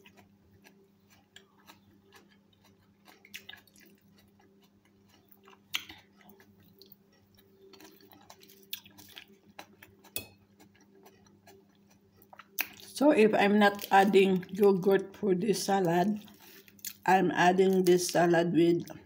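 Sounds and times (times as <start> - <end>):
chewing crunchy lettuce: 0.0 - 14.9, 15.8 - 18.3.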